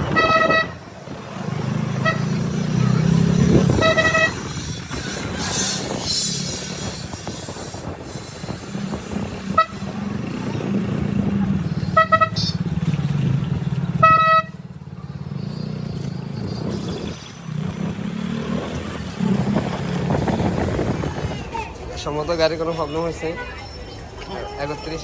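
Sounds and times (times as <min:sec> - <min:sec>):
horn toots: 0:00.0 - 0:00.9, 0:01.9 - 0:08.0, 0:08.8 - 0:10.4, 0:11.8 - 0:12.7, 0:14.0 - 0:14.7
motorcycle engine running: 0:00.0 - 0:21.7.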